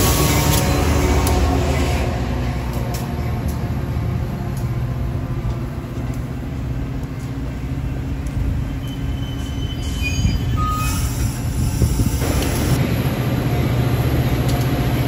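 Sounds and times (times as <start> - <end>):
train wheels rumbling on rails: 0.0 - 15.0
faint high squeals: 8.8 - 11.9.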